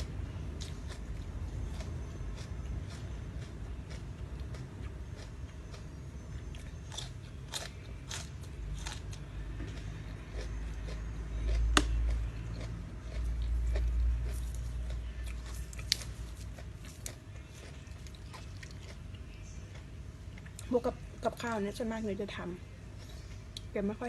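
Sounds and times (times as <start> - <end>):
person chewing crunchy food: 0.0 - 20.7.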